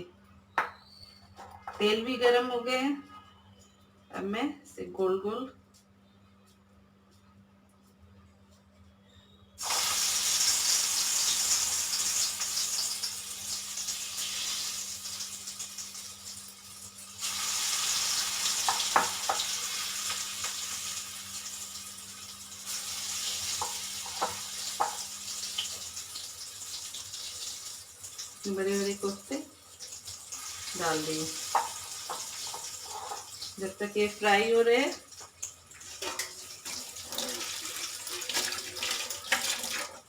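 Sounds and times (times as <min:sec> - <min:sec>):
oil sizzling loudly: 0:09.6 - 0:40.0.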